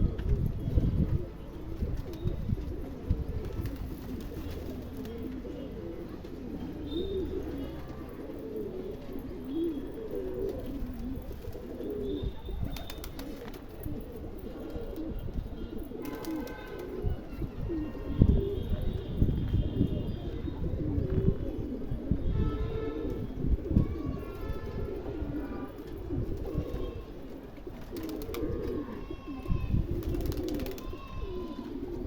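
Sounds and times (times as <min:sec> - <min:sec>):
pigeons cooing: 0:00.0 - 0:32.0.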